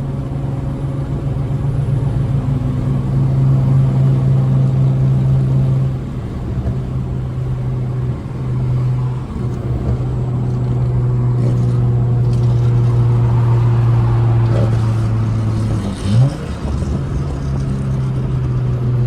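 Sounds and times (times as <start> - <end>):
car exhaust droning: 0.0 - 19.0.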